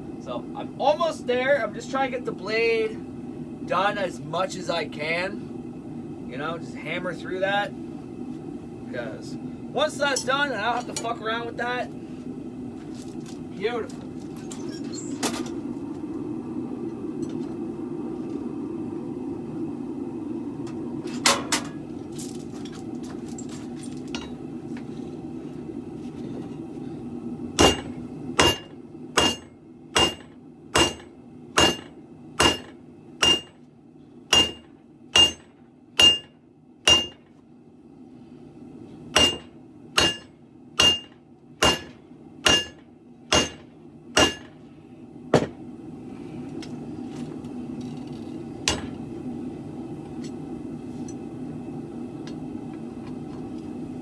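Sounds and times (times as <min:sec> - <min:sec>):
steady low hum: 0:00.0 - 0:54.0
hammer striking metal on anvil: 0:27.6 - 0:33.6, 0:34.3 - 0:36.3, 0:36.9 - 0:37.2, 0:39.2 - 0:44.6, 0:48.7 - 0:49.0.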